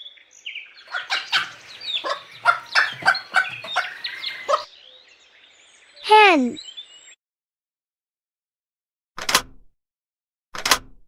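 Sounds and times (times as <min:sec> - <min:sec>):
hen clucking: 0:00.8 - 0:04.7.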